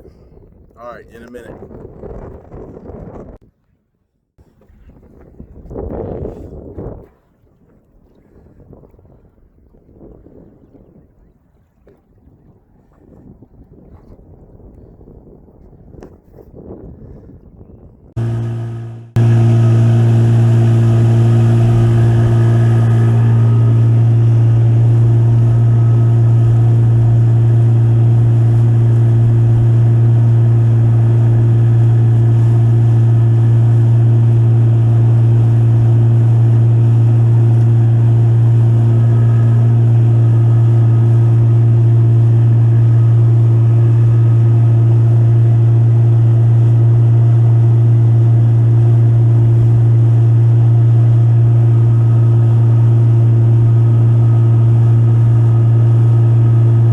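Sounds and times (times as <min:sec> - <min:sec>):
boat motor droning: 0:00.0 - 0:03.4, 0:18.1 - 0:56.9.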